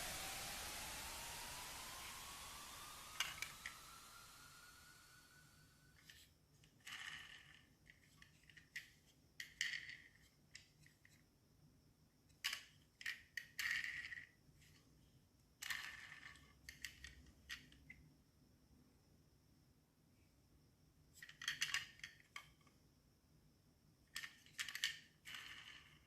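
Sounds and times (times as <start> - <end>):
toy cars clicking and rattling: 6.8 - 11.0, 12.4 - 14.4, 15.6 - 17.8, 21.2 - 22.5, 24.1 - 26.0.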